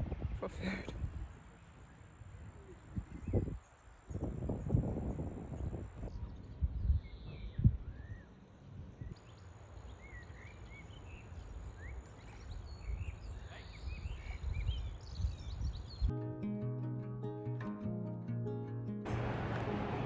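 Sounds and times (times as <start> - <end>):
small birds chirping: 2.6 - 8.4, 9.0 - 16.1
music: 16.1 - 20.0
low uneven rumble: 19.1 - 20.0.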